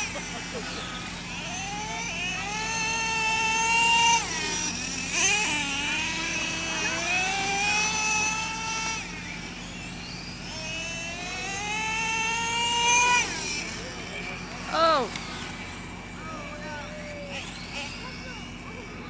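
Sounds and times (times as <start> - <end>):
radio-controlled car motor whine: 0.0 - 19.0.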